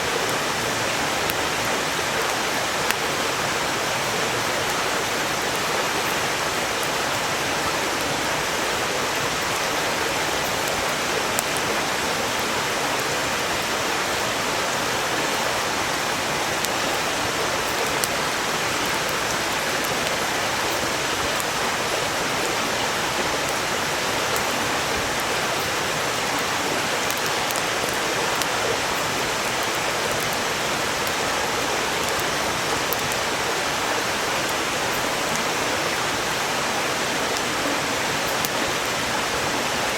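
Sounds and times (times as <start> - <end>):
stream flowing over rocks: 0.0 - 39.9
firewood crackling: 15.1 - 36.0.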